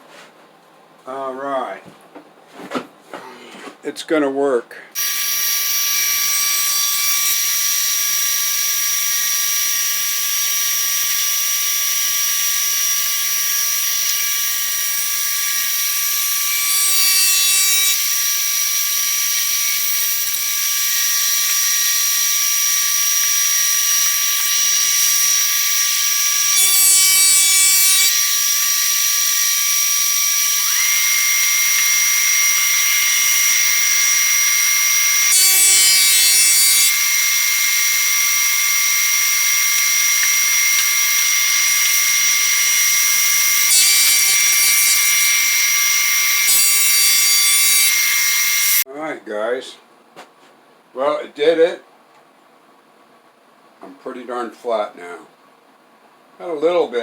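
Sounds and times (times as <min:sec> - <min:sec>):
thickness planer whining: 0:05.0 - 0:48.8.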